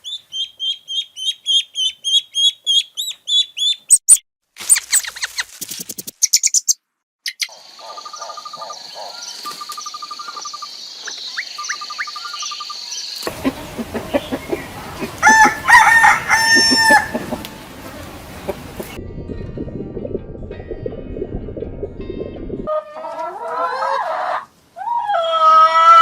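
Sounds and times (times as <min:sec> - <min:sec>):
birds chirping and trilling: 0:00.0 - 0:04.1, 0:06.2 - 0:19.0
rooster crowing: 0:13.3 - 0:17.6
steady high-pitched drone: 0:17.6 - 0:22.7.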